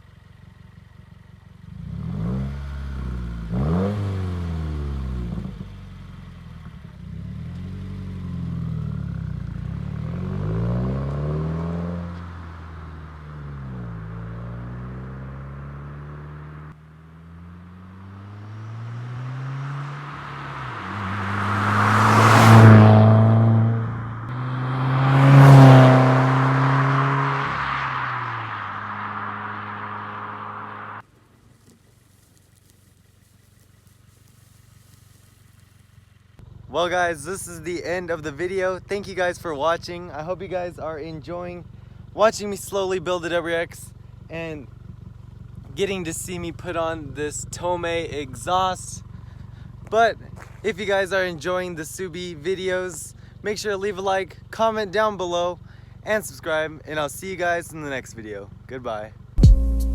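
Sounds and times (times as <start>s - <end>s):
car engine revving: 1.6s - 31.1s, 59.4s - 59.9s.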